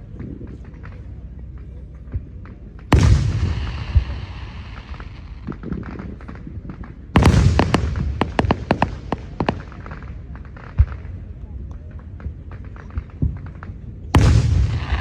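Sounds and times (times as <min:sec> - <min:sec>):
crackling firework pops: 0:00.0 - 0:15.0
firework booms: 0:02.9 - 0:11.4, 0:12.2 - 0:15.0.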